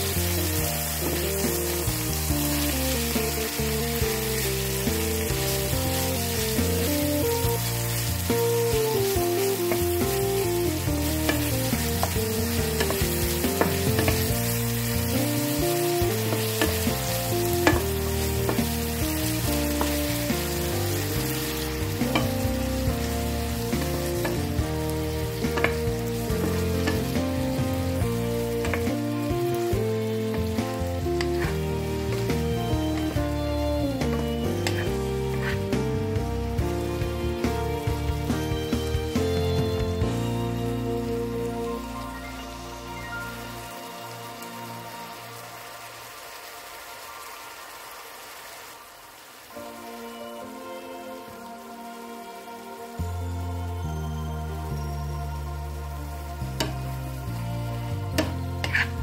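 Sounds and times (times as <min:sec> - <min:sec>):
food sizzling in oil: 0:00.0 - 0:59.0
wooden spoon scraping a pan: 0:10.8 - 0:29.6, 0:30.2 - 0:33.2, 0:34.0 - 0:35.9, 0:58.1 - 0:59.0.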